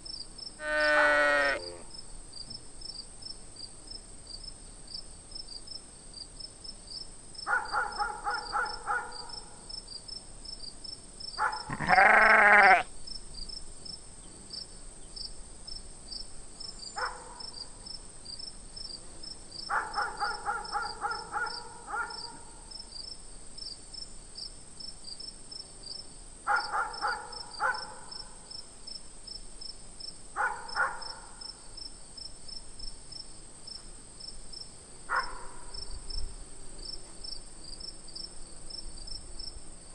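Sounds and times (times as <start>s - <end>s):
crickets chirping: 0.0s - 39.9s
farm animals bleating: 0.6s - 1.9s, 11.7s - 12.9s.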